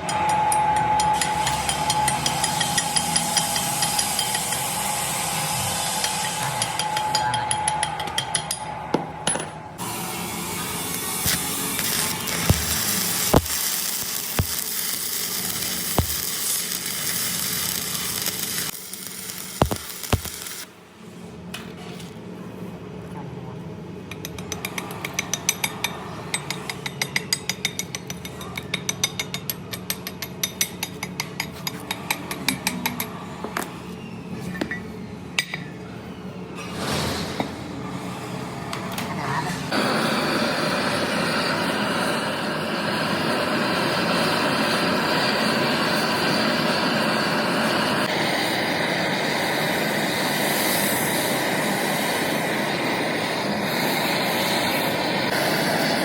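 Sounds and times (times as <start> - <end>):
steady hiss: 9.8 - 20.7.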